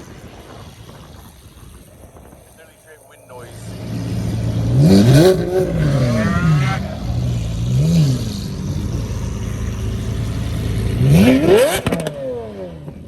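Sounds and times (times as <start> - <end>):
car engine idling and revving: 0.0 - 13.0
sharp exhaust cracks: 0.0 - 13.0.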